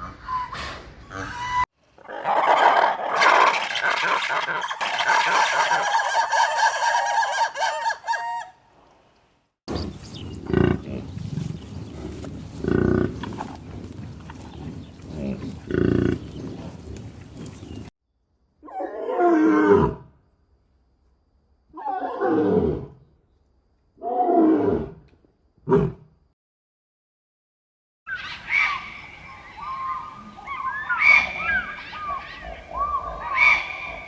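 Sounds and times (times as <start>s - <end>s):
other animal sounds: 0.0s - 8.5s, 9.7s - 17.9s.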